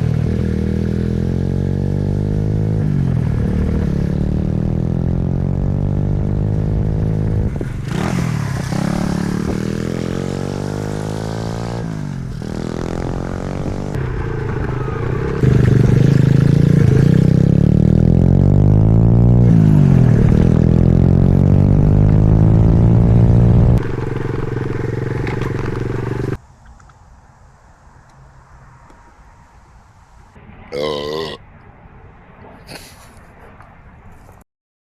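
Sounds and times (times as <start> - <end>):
pit bike engine revving: 0.0 - 26.4.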